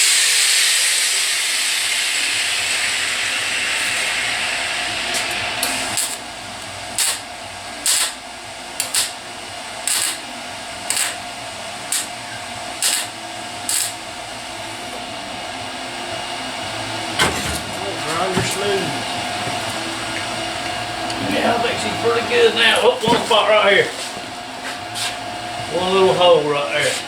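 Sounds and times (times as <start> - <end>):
welder welding sheet metal: 0.0 - 6.3, 6.9 - 8.2, 8.8 - 9.2, 9.8 - 11.2, 11.8 - 14.0.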